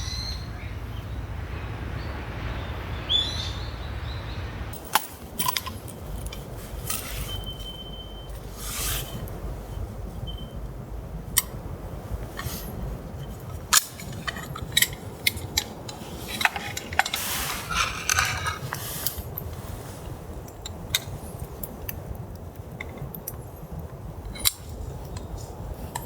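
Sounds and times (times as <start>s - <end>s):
metal cookware clinking: 12.3s - 18.8s.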